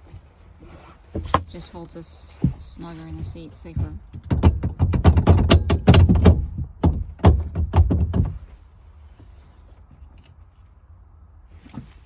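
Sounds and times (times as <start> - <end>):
rapid knocks and thuds: 2.4 - 8.6.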